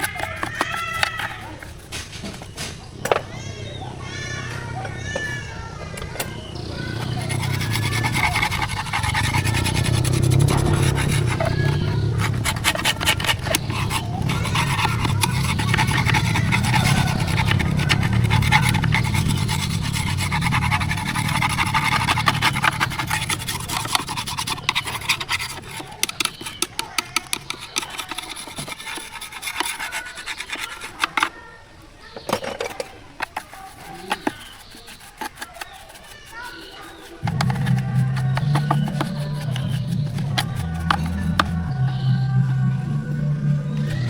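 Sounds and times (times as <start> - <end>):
scraping and rubbing strokes: 0.0 - 3.4, 6.1 - 31.6, 32.3 - 44.0
low hum: 37.3 - 44.0.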